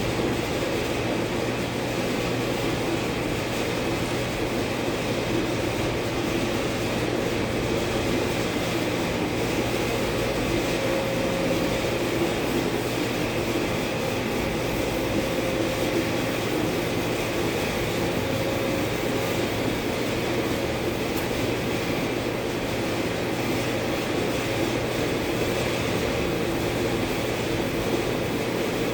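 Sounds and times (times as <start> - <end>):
steady machine drone: 9.5 - 28.9.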